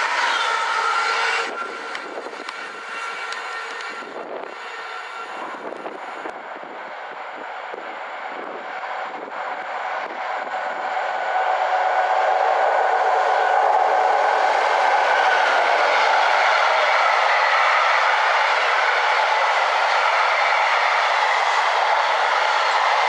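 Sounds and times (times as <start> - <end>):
wheels clicking over rail joints: 0.0 - 4.8
train wheels rushing on rails: 0.0 - 23.0.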